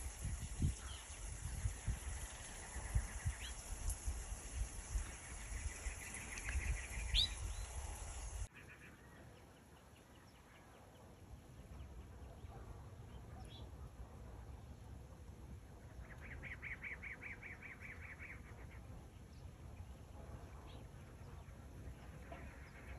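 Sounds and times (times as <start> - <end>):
bird chirps and trills: 0.2 - 9.6.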